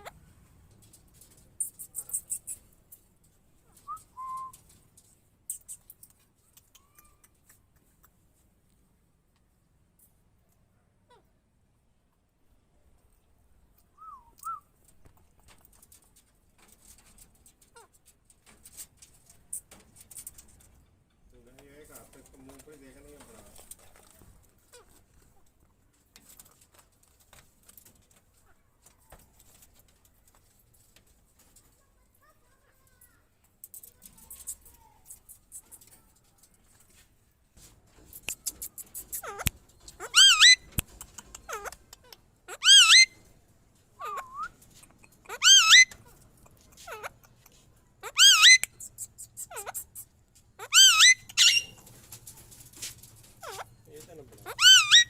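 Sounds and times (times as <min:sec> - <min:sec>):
faint clicks: 0:00.7 - 0:10.6
parakeets screeching: 0:39.0 - 0:40.7, 0:42.5 - 0:43.2, 0:45.3 - 0:46.0, 0:48.0 - 0:48.7, 0:50.6 - 0:51.8, 0:53.4 - 0:53.7, 0:54.4 - 0:55.0
parakeet falling calls: 0:45.3 - 0:45.9, 0:54.5 - 0:55.0.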